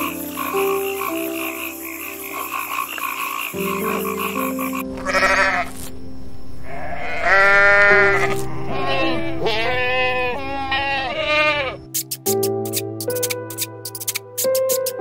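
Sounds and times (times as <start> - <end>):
goats and sheep bleating: 3.6 - 5.8, 6.6 - 11.9.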